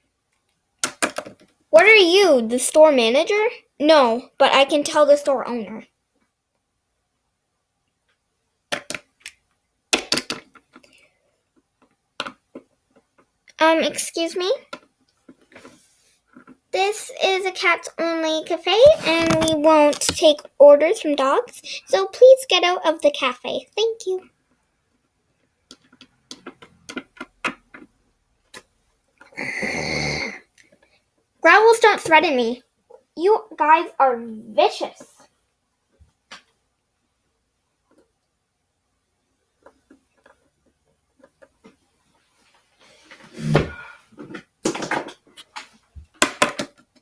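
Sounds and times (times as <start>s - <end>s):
plastic toy figures tapping: 18.8s - 20.3s
child growling: 29.4s - 30.4s.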